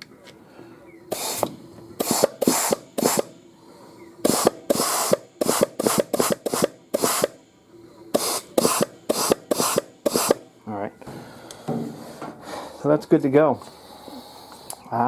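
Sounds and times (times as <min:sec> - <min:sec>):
compressed air blow gun blasts: 0:01.1 - 0:03.4, 0:04.2 - 0:07.4, 0:08.1 - 0:10.4.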